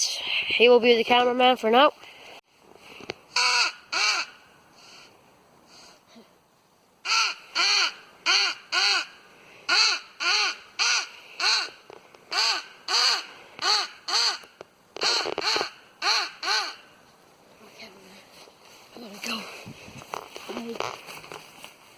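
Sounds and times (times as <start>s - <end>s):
crow call caws: 3.4s - 4.4s, 9.7s - 16.9s.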